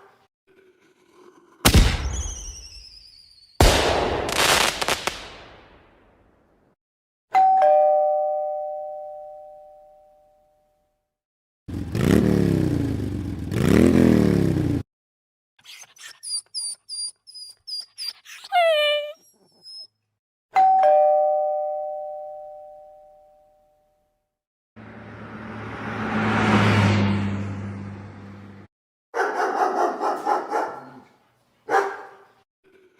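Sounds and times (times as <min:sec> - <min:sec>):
two-note doorbell chime: 0:07.3 - 0:10.7, 0:20.6 - 0:24.0
rising and falling swoops: 0:25.0 - 0:28.6.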